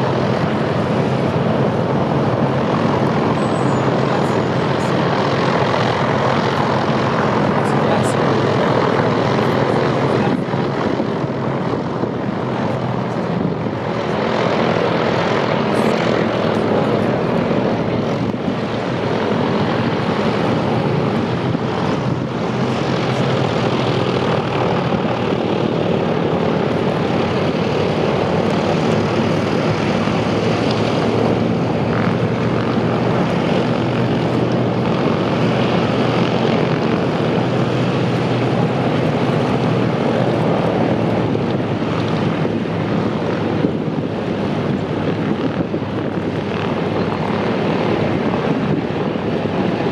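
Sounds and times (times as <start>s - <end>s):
aircraft piston engines droning: 0.0s - 49.9s.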